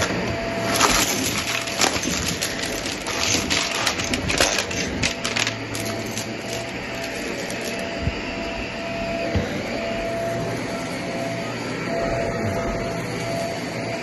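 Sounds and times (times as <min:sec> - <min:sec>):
beads rattling in vacuum: 0:00.0 - 0:07.9
vacuum cleaner motor hum: 0:00.0 - 0:14.0.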